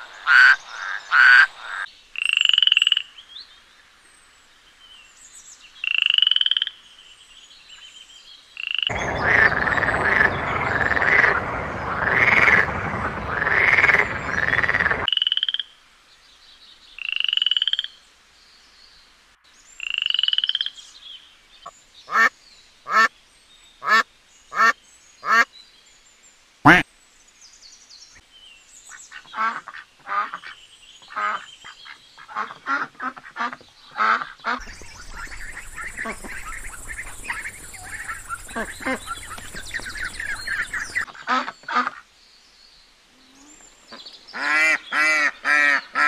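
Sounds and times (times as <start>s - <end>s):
frogs trilling and croaking: 0.0s - 3.2s, 5.8s - 6.8s, 8.6s - 15.8s, 17.0s - 18.0s, 19.8s - 21.0s, 34.4s - 41.1s
duck calling: 32.3s - 42.0s.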